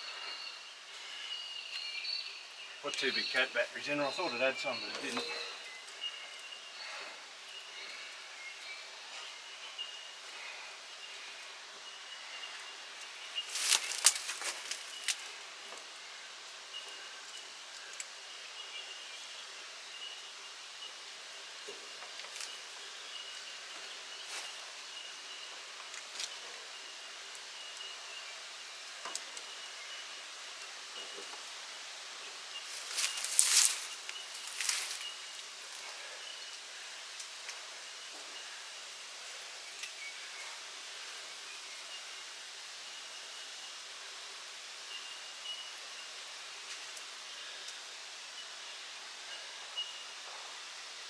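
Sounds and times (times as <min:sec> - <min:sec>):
faint high chirping: 0:00.0 - 0:15.3, 0:32.4 - 0:36.6
outdoor background hiss: 0:00.0 - 0:51.0
faint high chirp: 0:00.2 - 0:06.5
rustling: 0:13.4 - 0:15.4, 0:32.6 - 0:36.2.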